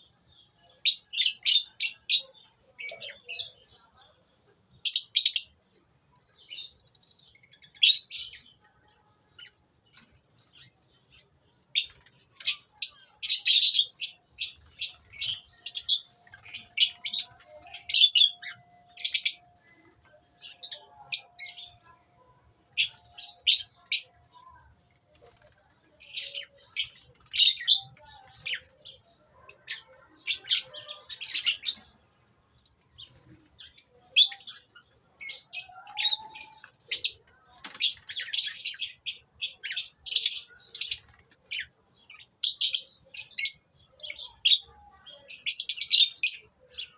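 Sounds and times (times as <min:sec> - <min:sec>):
lovebirds shrill chirps: 0:00.8 - 0:03.6, 0:11.7 - 0:21.9, 0:22.7 - 0:24.4, 0:25.1 - 0:31.9, 0:32.9 - 0:46.9.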